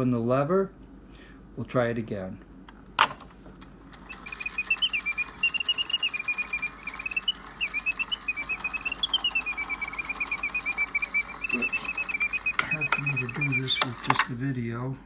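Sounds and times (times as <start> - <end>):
clockwork mechanism clicking: 3.0 - 14.4
mechanical bird warbling whistle: 4.0 - 14.2.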